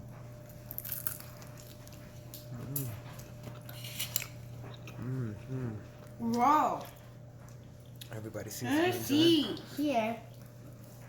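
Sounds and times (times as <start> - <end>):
person humming mm: 2.5 - 3.0, 5.0 - 5.8.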